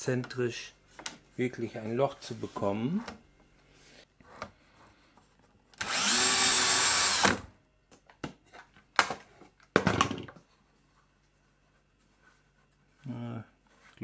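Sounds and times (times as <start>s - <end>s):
power drill spinning: 5.8s - 7.5s.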